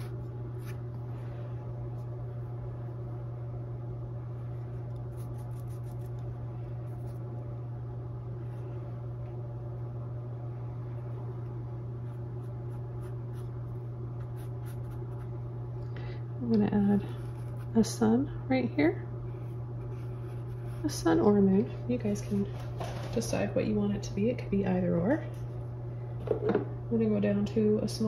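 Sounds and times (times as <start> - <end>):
low hum: 0.0 - 28.0
paintbrush scratching on canvas: 5.0 - 6.2, 14.2 - 15.4.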